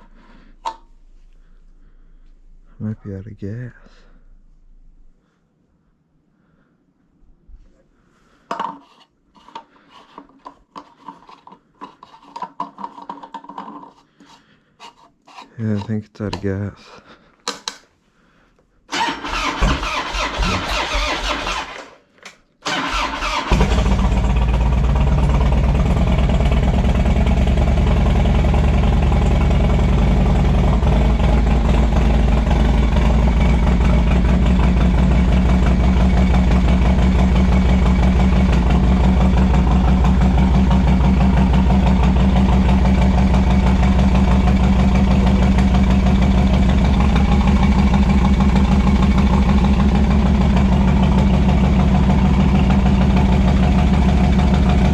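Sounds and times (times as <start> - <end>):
motorcycle engine cranking: 18.9 - 22.0, 22.6 - 26.8
motorcycle engine idling: 22.9 - 54.9.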